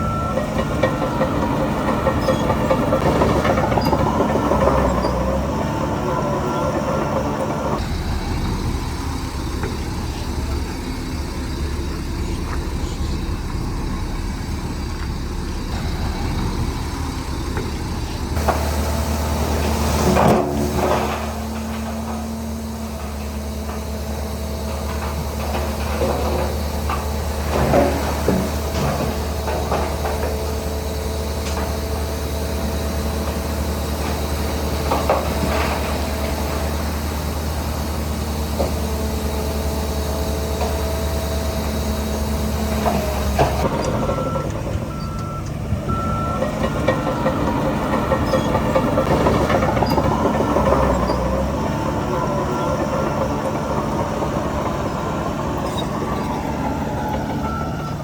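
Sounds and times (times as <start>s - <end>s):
reversing alarm beeping: 0.0s - 19.5s, 39.2s - 58.0s
heavy diesel machinery running: 0.0s - 58.0s.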